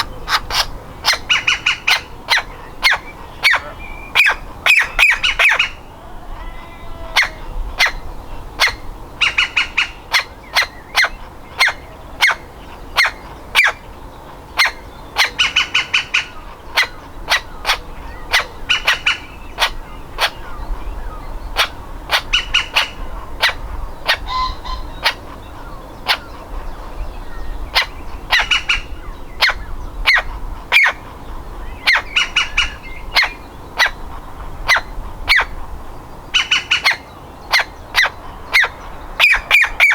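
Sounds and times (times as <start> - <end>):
woodpecker nestling harsh calls: 0.0 - 5.8, 21.5 - 26.4, 27.4 - 34.0, 36.3 - 39.9.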